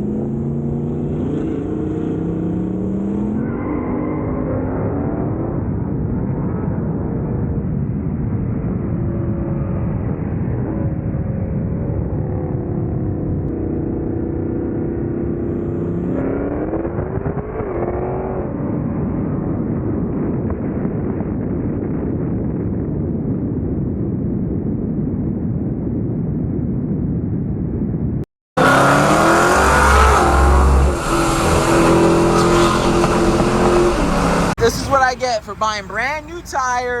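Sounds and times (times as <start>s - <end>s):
car engine accelerating: 0.0s - 21.3s, 28.6s - 36.1s.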